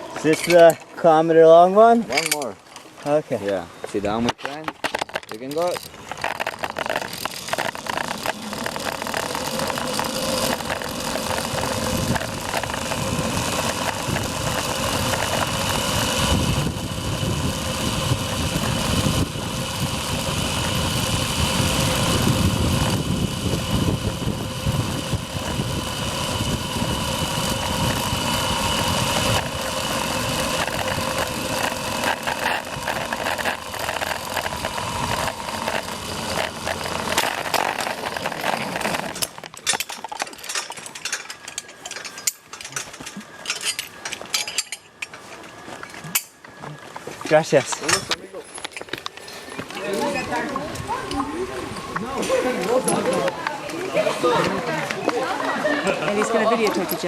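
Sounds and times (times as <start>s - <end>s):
zipline pulleys whining on cable: 0.0s - 2.5s, 4.9s - 57.0s
rushing wind: 6.0s - 39.4s.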